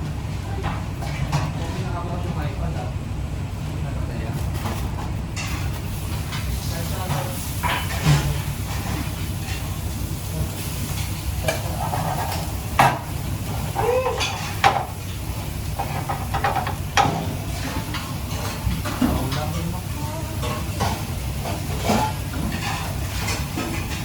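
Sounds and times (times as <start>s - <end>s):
food frying in a pan: 4.4s - 24.0s
utensil knocking against pan: 15.8s - 17.3s.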